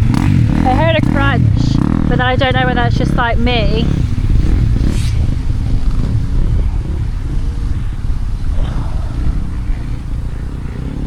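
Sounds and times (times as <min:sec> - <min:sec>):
motocross bike engines rumbling: 0:00.0 - 0:11.0.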